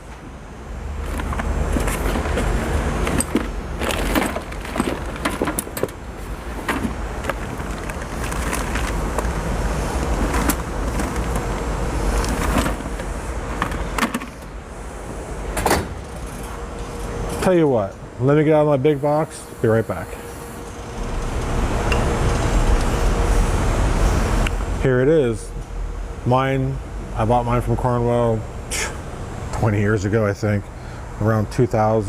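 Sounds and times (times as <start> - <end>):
low rumble: 20.8 - 24.8.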